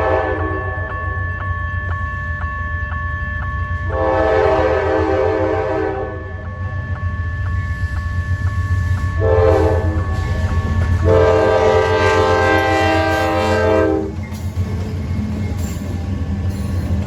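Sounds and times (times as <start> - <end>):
locomotive air horn: 0.0 - 0.8, 3.9 - 6.2, 9.2 - 10.1, 11.0 - 14.1
passing train rumble: 0.0 - 17.0.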